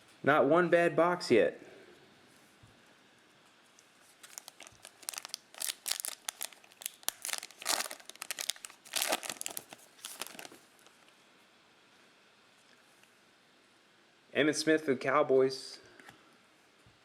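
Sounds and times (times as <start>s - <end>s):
plastic wrapper tearing and crinkling: 4.1s - 11.0s.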